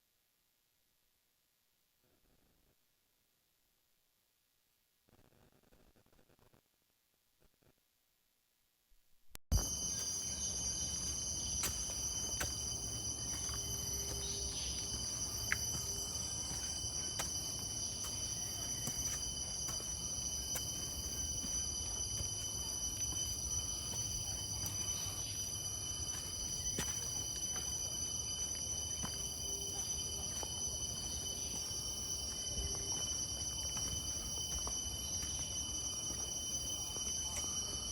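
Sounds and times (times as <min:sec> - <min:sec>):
insects chorus: 0:09.5 - 0:37.9.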